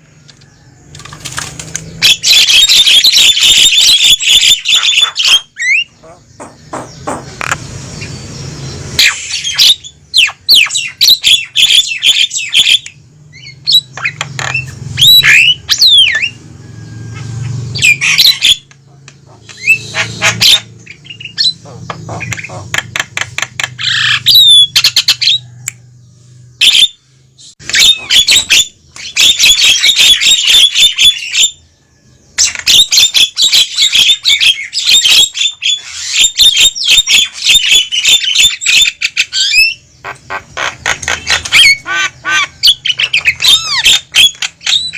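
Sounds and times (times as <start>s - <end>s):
mynas squawking and whistling: 2.0s - 8.2s, 9.0s - 23.0s, 23.8s - 25.7s, 26.6s - 31.6s, 32.4s - 44.9s.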